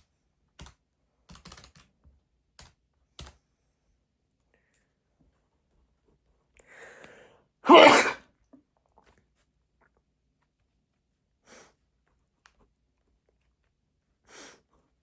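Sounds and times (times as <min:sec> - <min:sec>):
intake of breath: 0:06.7 - 0:07.4
person sneezing: 0:07.7 - 0:08.2.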